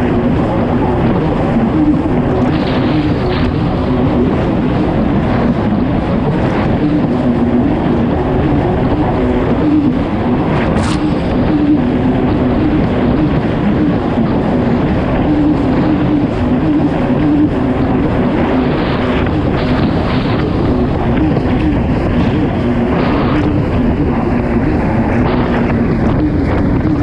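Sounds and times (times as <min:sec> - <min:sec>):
jet ski engine running hard: 0:00.0 - 0:27.0
rush of wind and water spray: 0:00.0 - 0:27.0.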